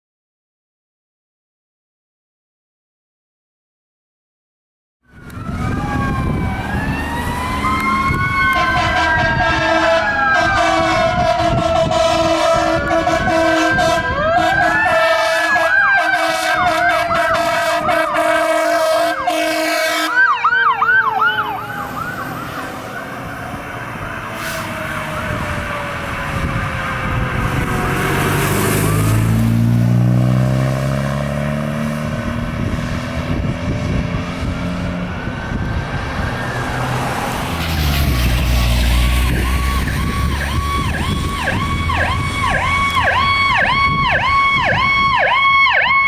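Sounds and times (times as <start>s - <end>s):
electronic siren yelp: 5.1s - 29.6s, 35.0s - 46.0s
siren tone winding down: 5.1s - 31.2s, 34.2s - 46.0s
heavy diesel engine passing: 5.1s - 45.1s
air horn blast: 8.4s - 20.3s.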